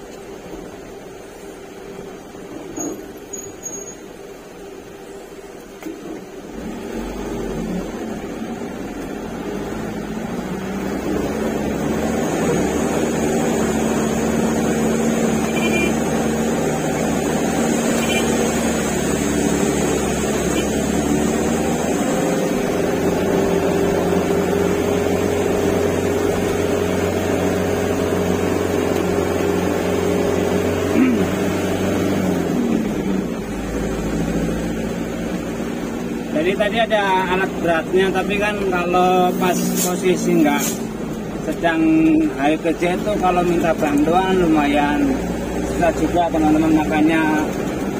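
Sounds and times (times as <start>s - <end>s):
truck engine running under load: 0.1s - 36.3s, 37.1s - 47.9s.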